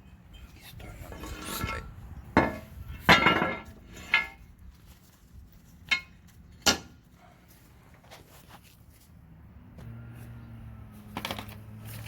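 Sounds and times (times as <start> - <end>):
faint handling sounds: 4.6 - 9.2.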